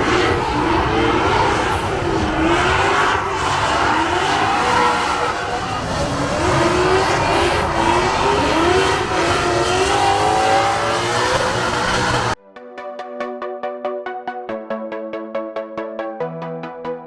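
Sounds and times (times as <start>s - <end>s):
car engines revving: 0.0s - 12.4s.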